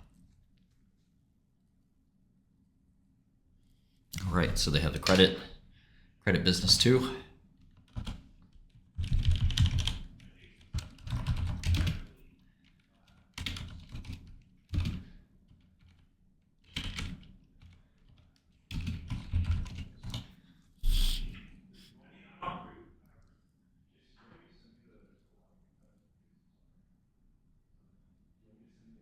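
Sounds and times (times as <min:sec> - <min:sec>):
typing on keyboard: 0:07.6 - 0:20.3.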